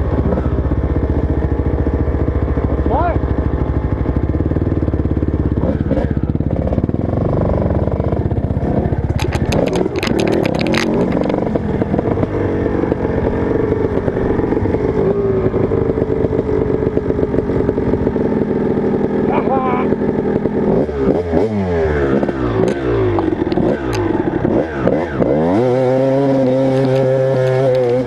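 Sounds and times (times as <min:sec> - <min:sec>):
motocross bike engine: 0:00.0 - 0:28.0
rapid clattering clicks: 0:09.0 - 0:11.6.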